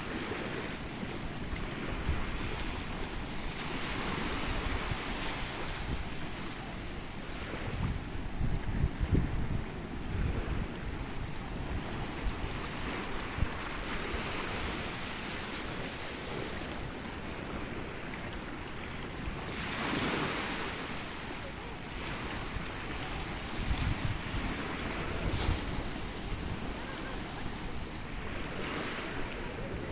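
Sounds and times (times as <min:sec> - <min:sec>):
sea waves breaking ashore: 0:00.0 - 0:29.9
wind buffeting microphone: 0:00.0 - 0:29.9.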